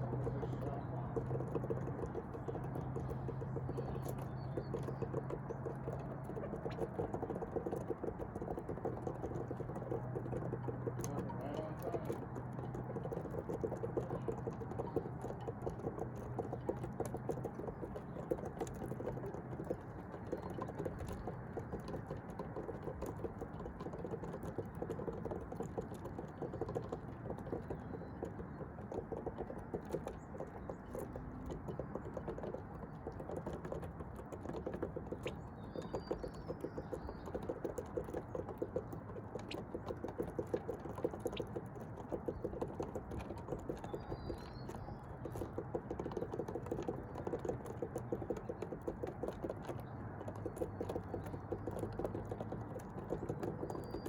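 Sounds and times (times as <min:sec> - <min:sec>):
low steady hum: 0:00.0 - 0:54.0
small clicks and pattering: 0:00.0 - 0:54.0.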